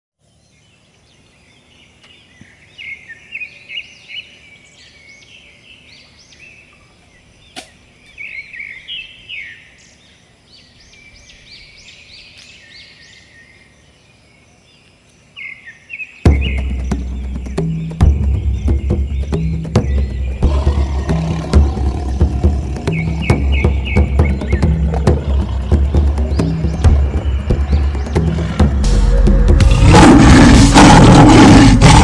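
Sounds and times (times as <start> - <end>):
birds chirping and calling: 0.2 - 32.0
faint outdoor hiss: 0.2 - 32.0
loud low boom: 25.8 - 32.0.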